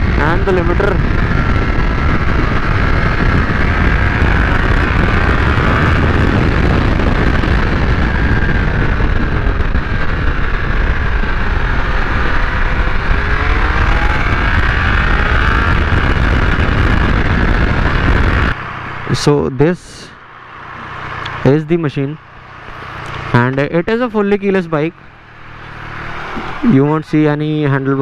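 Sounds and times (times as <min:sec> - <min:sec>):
wind buffeting microphone: 0:00.0 - 0:19.0
motorcycle engine running: 0:00.0 - 0:19.4, 0:20.1 - 0:27.2.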